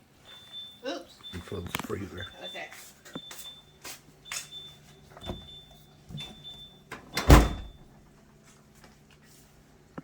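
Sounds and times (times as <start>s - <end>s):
freezer alarm beeping: 0.0s - 8.1s
freezer door shutting with thud: 7.1s - 7.8s.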